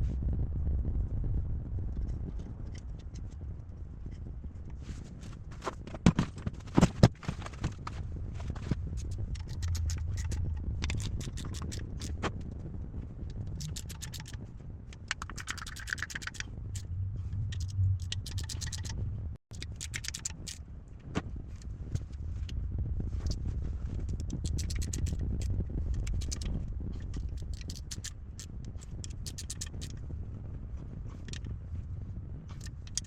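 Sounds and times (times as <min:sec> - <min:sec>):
steady low hum: 0:00.0 - 0:33.0
quick clicks: 0:09.0 - 0:12.3, 0:13.5 - 0:14.4, 0:15.0 - 0:16.9, 0:17.5 - 0:20.6, 0:24.2 - 0:30.0.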